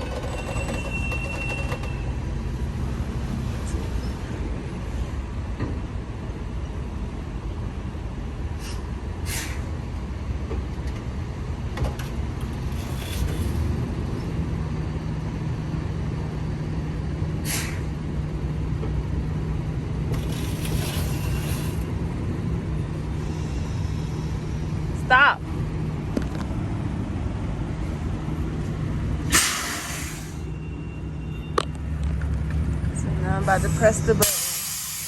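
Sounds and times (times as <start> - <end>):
diesel engine running slowly: 0.0 - 35.0
air hisses: 17.4 - 17.9, 29.3 - 30.5, 33.6 - 35.0.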